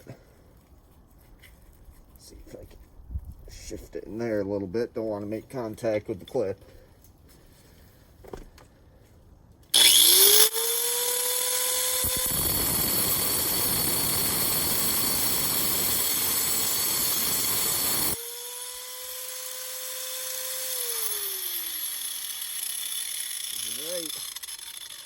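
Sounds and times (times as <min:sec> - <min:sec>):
angle grinder whining: 0:09.7 - 0:25.0
grinder cutting stone: 0:09.8 - 0:25.0.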